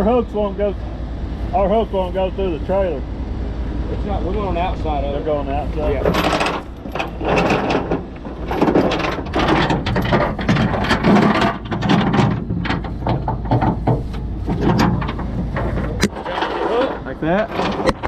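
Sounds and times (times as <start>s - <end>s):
low steady hum: 0.0s - 18.0s
steel chains clanking: 5.8s - 18.0s.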